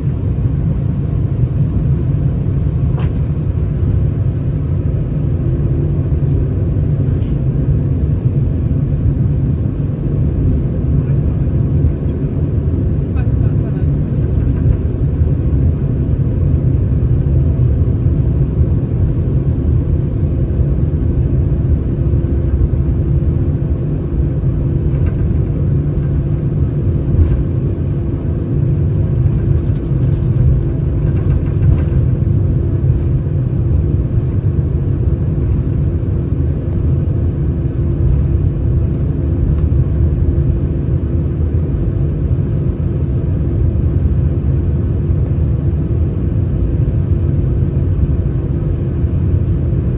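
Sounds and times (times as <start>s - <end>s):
airplane cabin engine rumble: 0.0s - 49.9s
faint constant hum: 0.0s - 49.9s.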